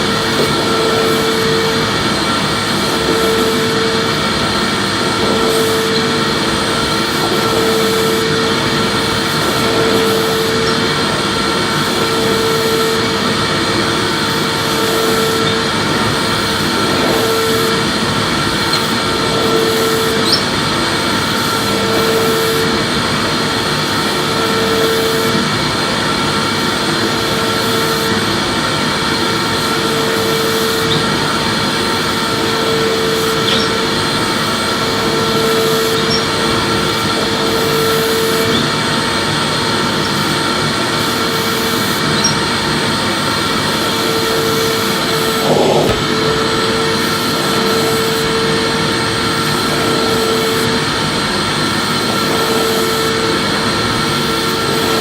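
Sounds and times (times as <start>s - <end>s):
vacuum cleaner running: 0.0s - 55.0s
short knock: 45.4s - 46.2s.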